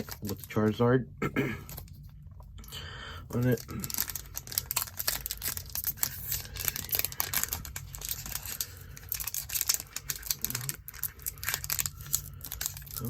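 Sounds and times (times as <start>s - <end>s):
foil wrapper crinkling: 0.0s - 0.6s, 3.3s - 13.0s.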